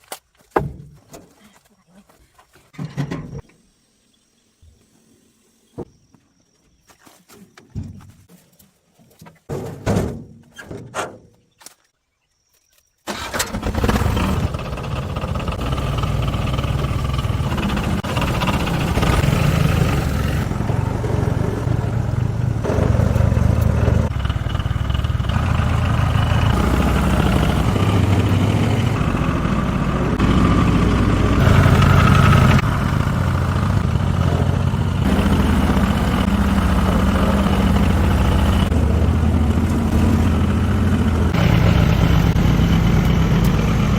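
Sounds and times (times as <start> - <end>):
tractor engine starting and idling: 13.1 - 43.9.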